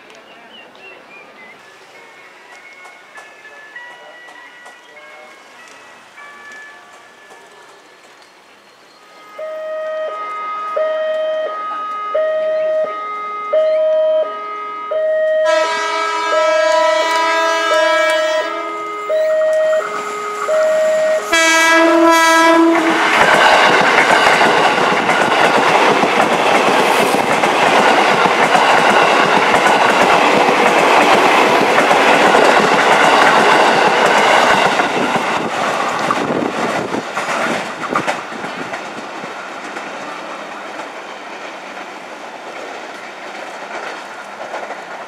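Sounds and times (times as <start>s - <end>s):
train horn: 9.0s - 23.7s
train wheels clacking over rail joints: 22.4s - 45.0s.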